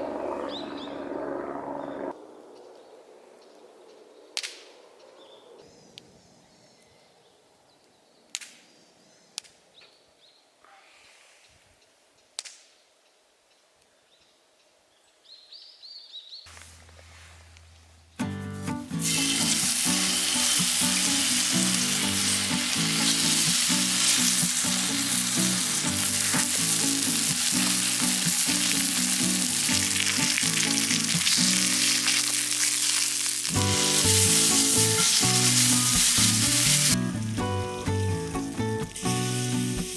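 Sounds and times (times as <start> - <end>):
meat sizzling in a frying pan: 19.0 - 39.9.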